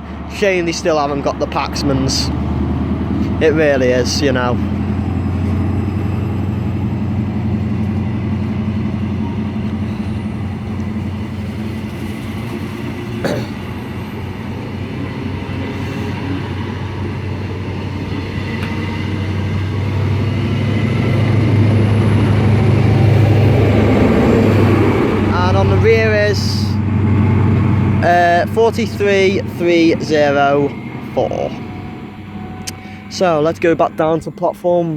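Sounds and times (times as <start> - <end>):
diesel train engine drone: 0.0 - 34.9.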